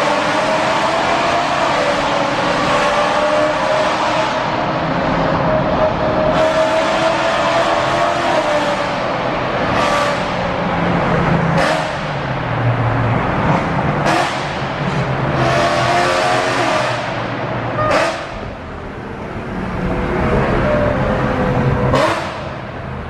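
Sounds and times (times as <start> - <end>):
car engine revving loudly: 11.5 - 12.3, 13.4 - 18.5, 21.9 - 22.6.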